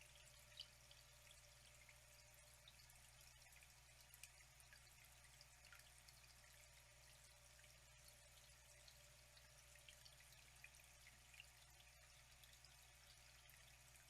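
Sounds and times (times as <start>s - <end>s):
low steady hum: 0.0s - 14.0s
water trickling and dripping: 0.0s - 14.0s.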